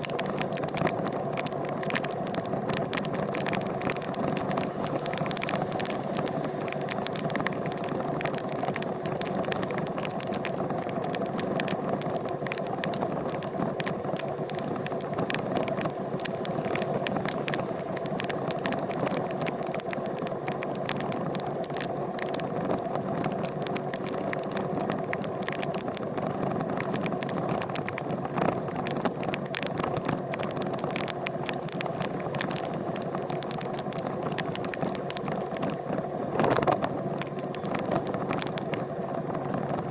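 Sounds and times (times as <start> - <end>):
small sharp clicks: 0.0 - 38.8
constant rattle: 0.0 - 39.9.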